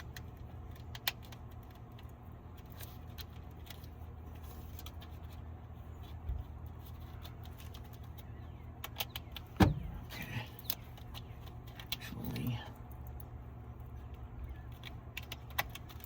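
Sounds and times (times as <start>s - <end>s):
low steady hum: 0.0s - 16.0s
thump: 9.6s - 9.9s.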